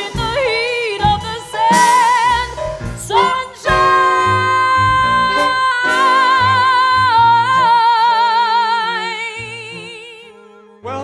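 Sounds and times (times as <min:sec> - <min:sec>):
band accompaniment: 0:00.0 - 0:07.8.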